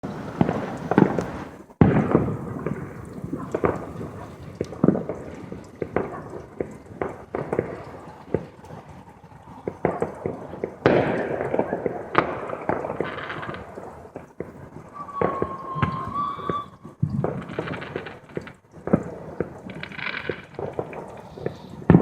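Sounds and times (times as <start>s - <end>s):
fireworks bangs with rumbling echo: 0.0s - 8.8s, 9.6s - 22.0s.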